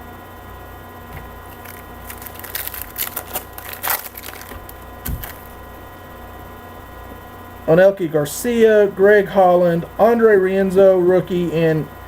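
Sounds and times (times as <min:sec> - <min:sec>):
steady electrical hum: 0:00.0 - 0:12.0
cards being handled: 0:01.2 - 0:05.6
card pack wrapper crinkling and tearing: 0:01.5 - 0:05.6.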